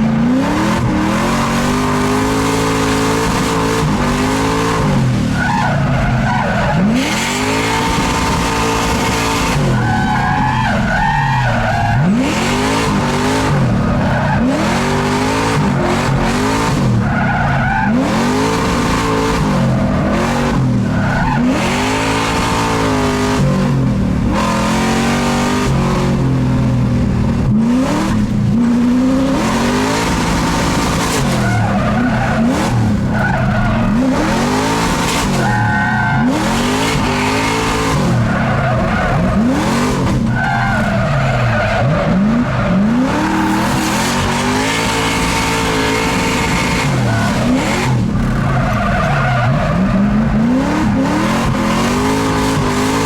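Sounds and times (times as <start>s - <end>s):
car engine revving: 0.0s - 53.0s
tyres squealing and skidding: 0.9s - 23.5s, 29.0s - 53.0s.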